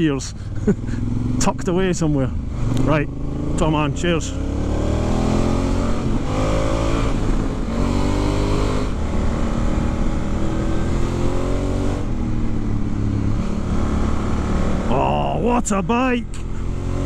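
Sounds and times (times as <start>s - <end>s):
motorcycle engine accelerating: 0.0s - 17.0s
wind rushing: 4.4s - 14.9s.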